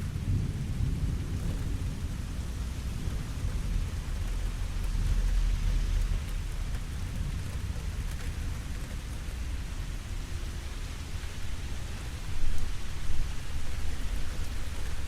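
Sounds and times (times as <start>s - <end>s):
low rumble of thunder: 0.0s - 15.0s
steady rainfall hissing: 0.0s - 15.0s.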